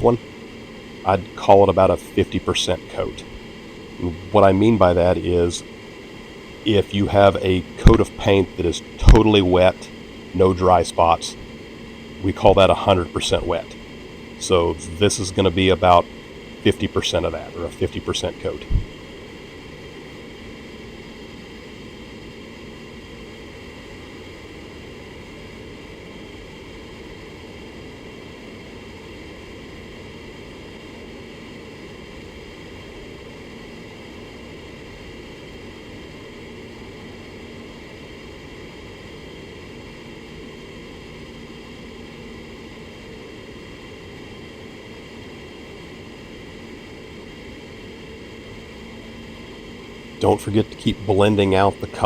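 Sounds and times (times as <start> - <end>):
faint low hum: 0.0 - 20.1, 40.2 - 52.0.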